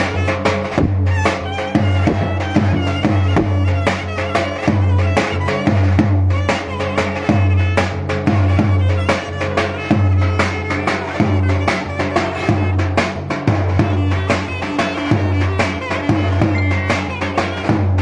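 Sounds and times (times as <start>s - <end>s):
drum beating driving rhythm: 0.0s - 18.0s
clarinet melody: 15.1s - 17.7s.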